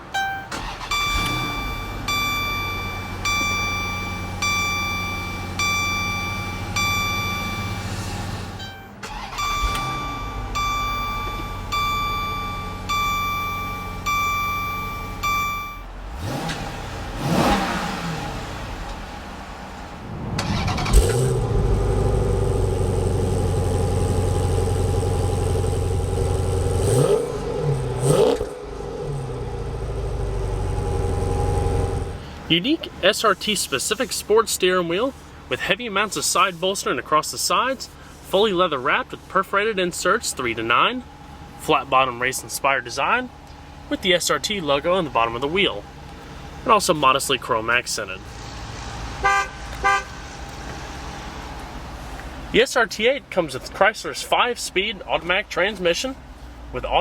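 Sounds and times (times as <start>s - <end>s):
car engine starting and idling: 0.0s - 57.0s
throttle blips: 0.1s - 7.9s, 8.6s - 15.9s
cabin warning chime dinging: 0.1s - 8.0s, 8.6s - 15.9s.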